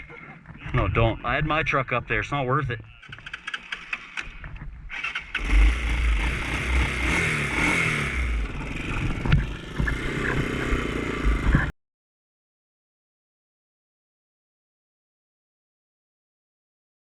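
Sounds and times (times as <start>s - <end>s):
off-road vehicle engine revving: 4.9s - 11.7s.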